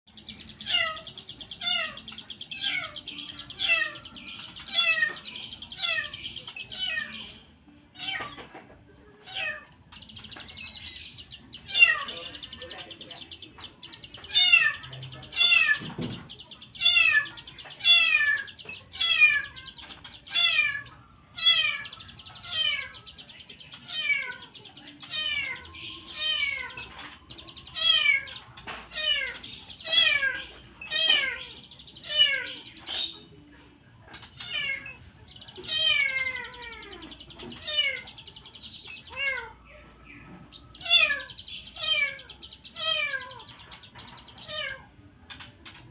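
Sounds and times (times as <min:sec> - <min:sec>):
high bird twitter: 0:00.1 - 0:33.4, 0:34.2 - 0:45.9.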